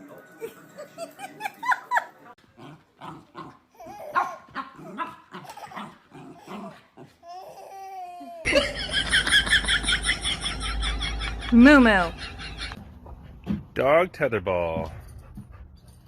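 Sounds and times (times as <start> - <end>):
dog barking and whining: 3.0 - 7.2
person laughing: 8.4 - 12.8.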